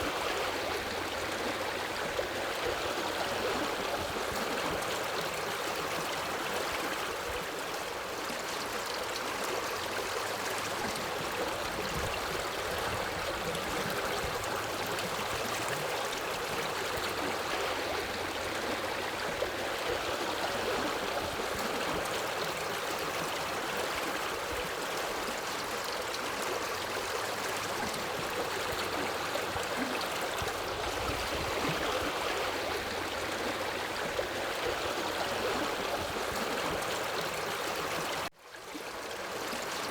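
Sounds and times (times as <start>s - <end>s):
river water rushing and babbling: 0.0s - 39.9s.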